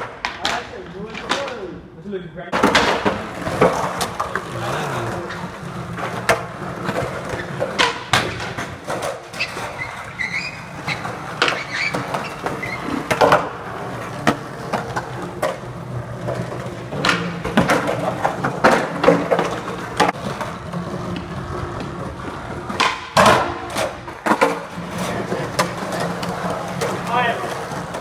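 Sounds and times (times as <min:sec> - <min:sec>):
skateboard clacks: 0:00.0 - 0:01.6, 0:02.5 - 0:28.0
skateboard wheels rolling on concrete: 0:00.0 - 0:01.9, 0:02.5 - 0:28.0.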